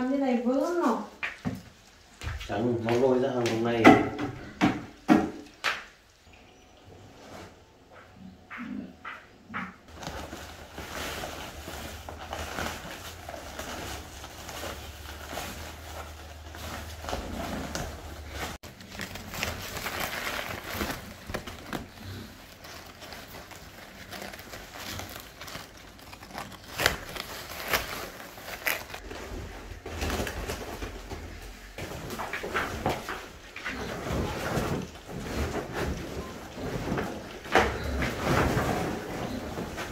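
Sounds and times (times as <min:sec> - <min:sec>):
plastic bags rustling and crinkling: 0:09.9 - 0:39.9.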